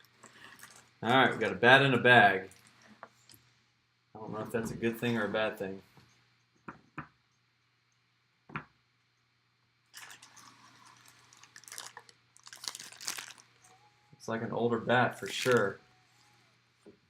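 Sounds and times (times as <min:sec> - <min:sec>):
plastic bag crinkling: 0:00.0 - 0:01.0, 0:09.9 - 0:13.7, 0:15.1 - 0:15.8.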